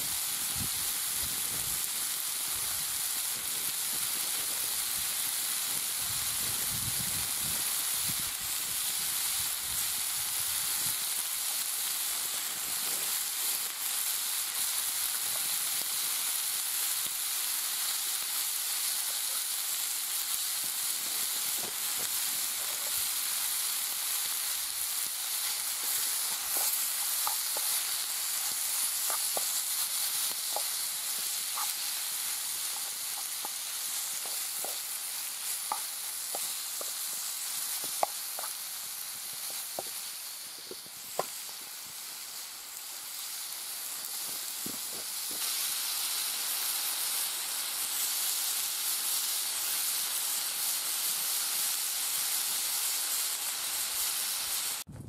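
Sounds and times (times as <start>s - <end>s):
food sizzling in a frying pan: 0.0s - 54.9s
small pops and clicks: 26.5s - 27.8s, 29.0s - 29.6s, 30.3s - 31.8s, 34.2s - 34.9s, 35.6s - 37.2s, 37.8s - 38.6s, 39.3s - 40.0s, 40.6s - 41.6s.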